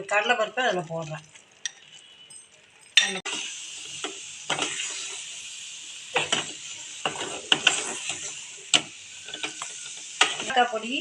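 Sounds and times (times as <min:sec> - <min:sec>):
steady sizzle: 0:00.0 - 0:11.0
utensil scraping a pan: 0:06.2 - 0:10.5.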